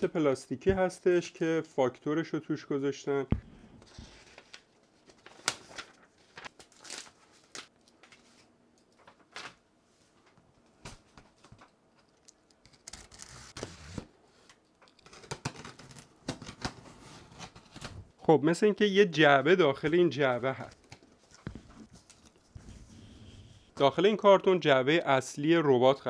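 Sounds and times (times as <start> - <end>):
cardboard being torn: 15.0 - 16.8.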